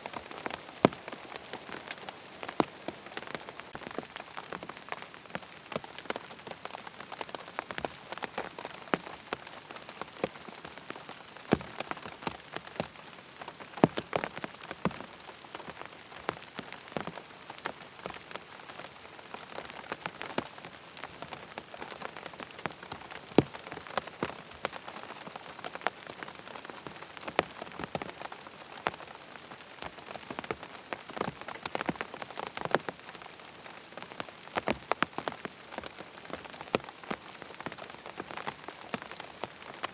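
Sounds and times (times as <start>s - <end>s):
steady rain hiss: 0.0s - 39.9s
sharp raindrop taps: 0.1s - 9.2s, 11.5s - 17.2s, 19.5s - 28.2s.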